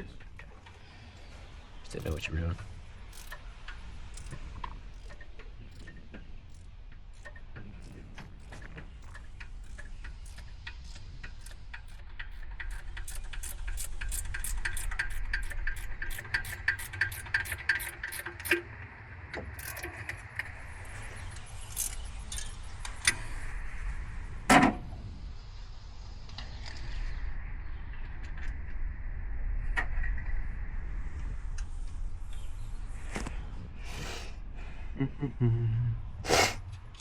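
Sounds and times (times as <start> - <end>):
rapid metallic clicks: 1.5 - 23.2
tool clinks: 3.1 - 18.6.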